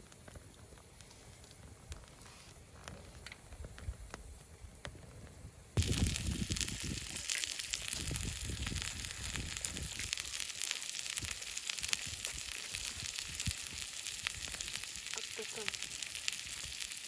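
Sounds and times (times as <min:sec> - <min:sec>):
food sizzling on barbecue: 0:05.8 - 0:17.0.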